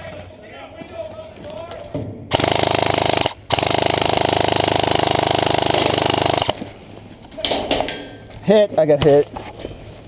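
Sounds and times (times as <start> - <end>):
airsoft gun firing bursts: 2.3 - 6.6.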